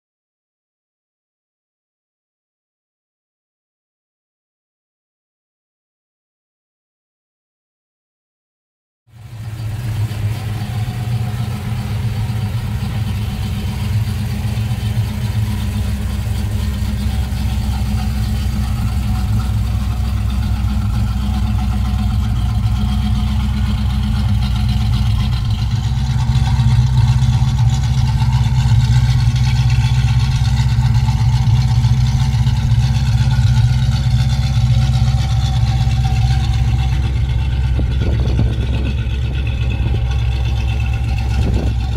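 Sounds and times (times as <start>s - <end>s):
car engine idling: 9.1s - 41.9s.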